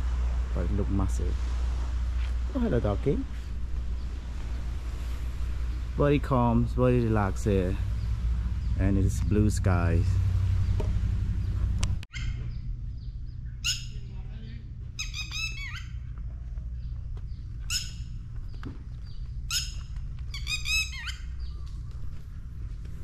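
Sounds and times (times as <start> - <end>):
steady low rumble: 0.0 - 23.0
bird singing: 5.7 - 22.7.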